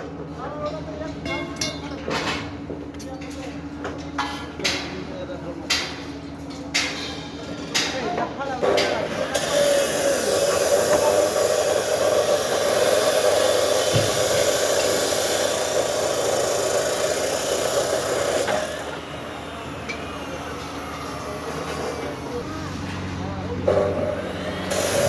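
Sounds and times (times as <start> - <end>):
machinery hissing and humming: 8.7 - 25.0.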